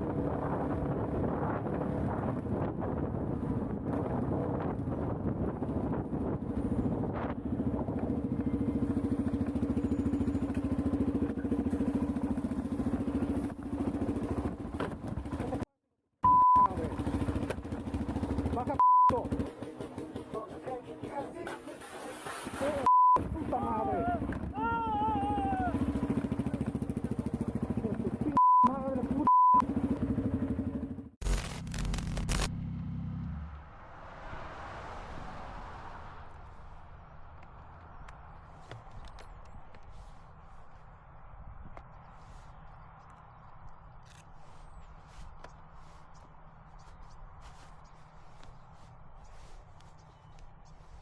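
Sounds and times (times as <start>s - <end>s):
motorcycle engine running: 0.0s - 15.7s, 16.6s - 21.4s, 23.2s - 33.5s
censor bleeps: 16.2s - 16.8s, 18.8s - 19.2s, 22.9s - 23.3s, 28.4s - 29.6s
rumbling noise with crackles: 31.2s - 32.5s, 33.5s - 41.0s.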